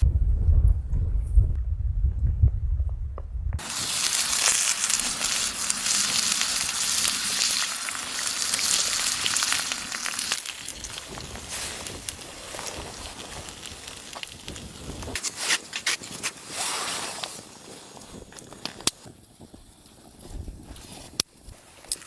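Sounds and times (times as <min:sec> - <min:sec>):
low rumble: 0:00.0 - 0:03.6
food sizzling in a pan: 0:03.6 - 0:18.9.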